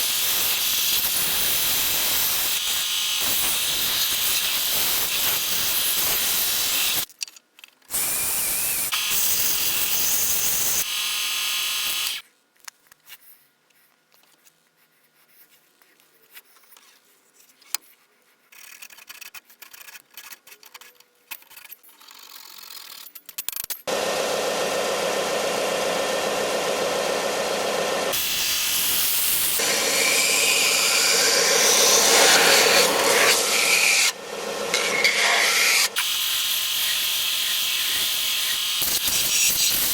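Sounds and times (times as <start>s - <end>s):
belt sander grinding wood: 23.9s - 39.9s.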